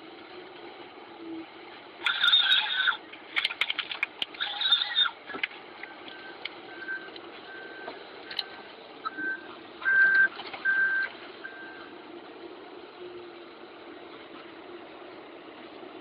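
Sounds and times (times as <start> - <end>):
engine humming: 0.0 - 16.0
reversing alarm beeping: 6.0 - 12.0.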